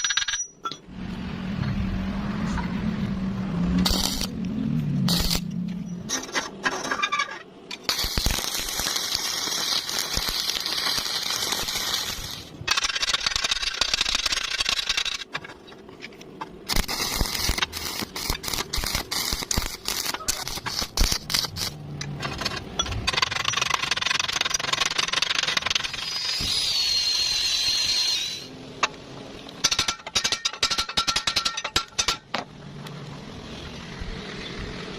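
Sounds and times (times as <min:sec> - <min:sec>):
arc welding hissing and crackling: 0:03.8 - 0:04.4, 0:05.0 - 0:05.5, 0:07.8 - 0:15.3, 0:16.6 - 0:21.8, 0:23.1 - 0:28.5.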